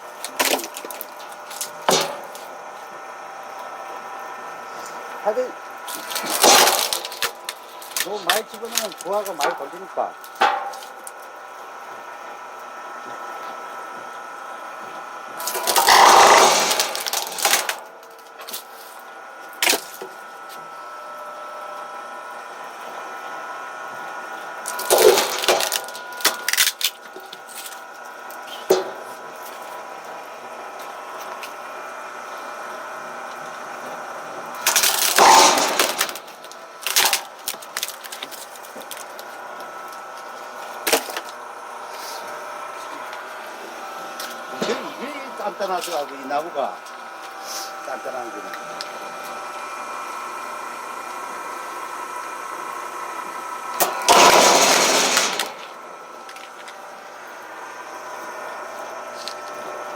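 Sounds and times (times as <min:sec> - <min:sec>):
electric motor whine: 0:00.0 - 0:59.9
wood cracking apart: 0:00.2 - 0:02.6, 0:05.8 - 0:11.2, 0:15.4 - 0:18.7, 0:19.5 - 0:20.2, 0:24.6 - 0:29.0, 0:34.6 - 0:41.4.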